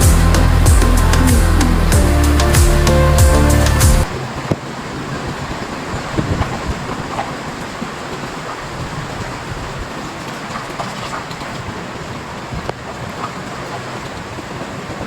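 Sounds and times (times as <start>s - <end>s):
storm wind buffeting microphone: 4.0s - 15.0s.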